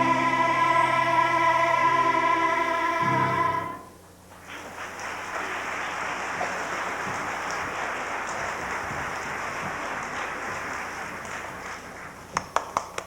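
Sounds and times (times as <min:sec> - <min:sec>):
children's choir singing: 0:00.0 - 0:04.0
audience applause: 0:04.4 - 0:13.0.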